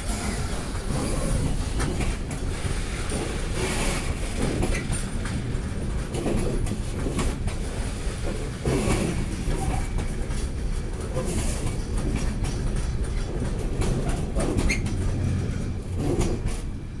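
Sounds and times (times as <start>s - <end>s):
steel wheels rumbling on rail: 0.0s - 17.0s
wheels clacking over rail joints: 0.0s - 17.0s.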